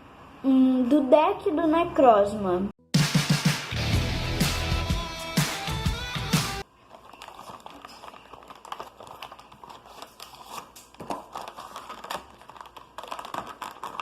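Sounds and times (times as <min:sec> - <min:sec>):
packaging crinkling and rustling: 0:06.6 - 0:14.0.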